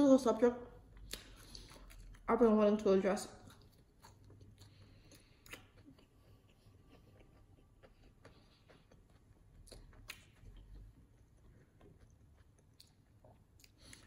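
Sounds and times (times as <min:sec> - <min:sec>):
quiet chewing clicks: 0:03.4 - 0:14.0.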